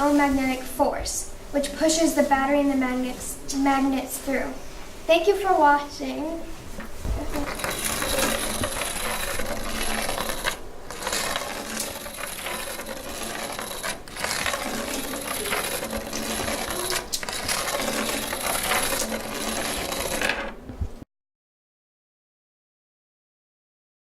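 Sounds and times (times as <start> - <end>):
toy train rattling and clinking: 7.3 - 20.6.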